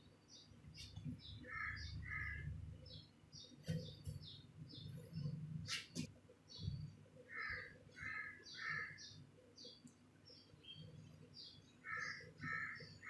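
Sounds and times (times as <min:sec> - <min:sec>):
bird cawing harshly: 0:11.8 - 0:12.9.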